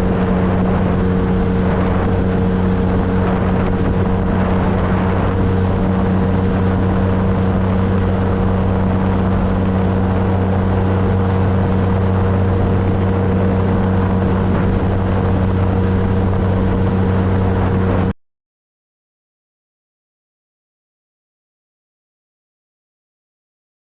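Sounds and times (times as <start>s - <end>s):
motorcycle engine cruising: 0.0s - 18.1s
wind and road noise: 0.0s - 18.2s.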